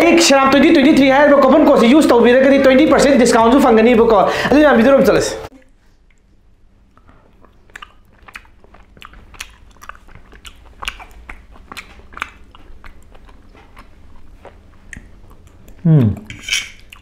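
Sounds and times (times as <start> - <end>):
person chewing: 5.6 - 17.0
wet mouth clicks and lip smacks: 6.9 - 17.0.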